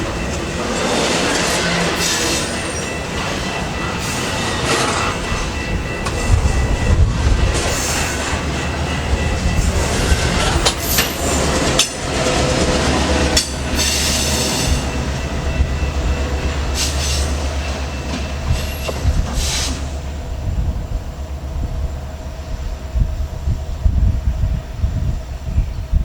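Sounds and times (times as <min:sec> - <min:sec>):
high wheel squeal: 0:00.0 - 0:11.8, 0:12.4 - 0:20.0
locomotive engine rumble: 0:00.0 - 0:26.0.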